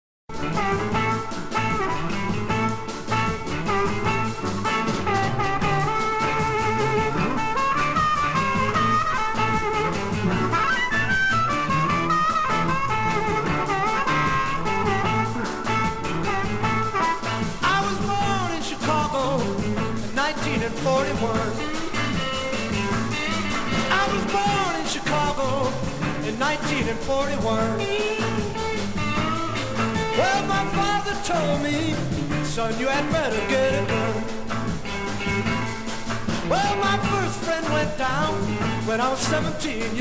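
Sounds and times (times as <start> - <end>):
blues-rock song with guitar: 0.3 - 40.0
person singing: 16.6 - 34.7, 36.3 - 40.0.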